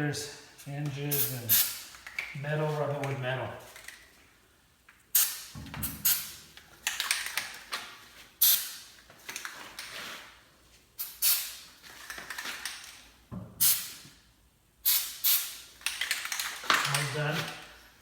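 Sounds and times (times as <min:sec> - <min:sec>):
aerosol can spraying: 0:01.1 - 0:01.8.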